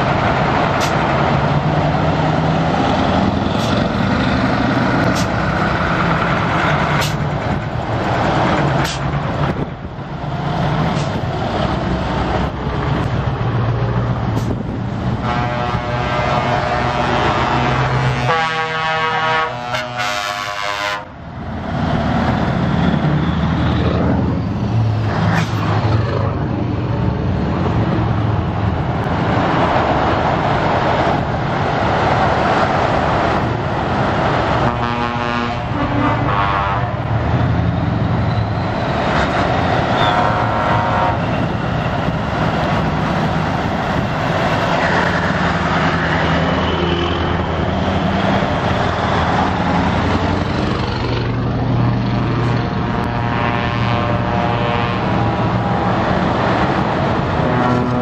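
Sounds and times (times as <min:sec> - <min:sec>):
diesel truck engines passing: 0:00.0 - 0:58.0
air horn blasts: 0:15.2 - 0:21.2, 0:34.6 - 0:37.0, 0:39.9 - 0:41.5, 0:53.0 - 0:55.4.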